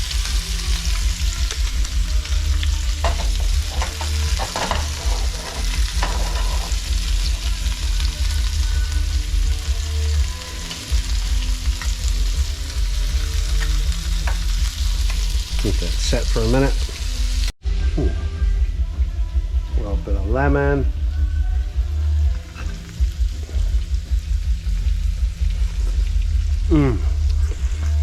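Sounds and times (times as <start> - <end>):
fish sizzling in a frying pan: 0.0 - 17.6
low hum: 0.0 - 28.0.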